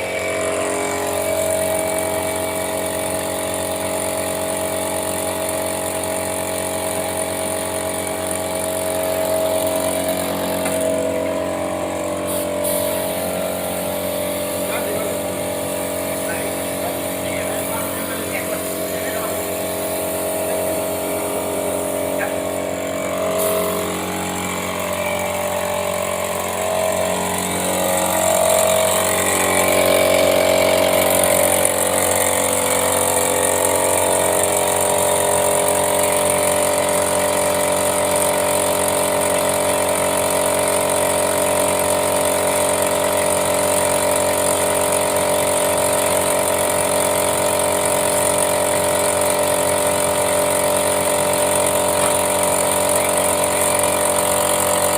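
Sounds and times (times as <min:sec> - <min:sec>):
motor humming: 0:00.0 - 0:54.9.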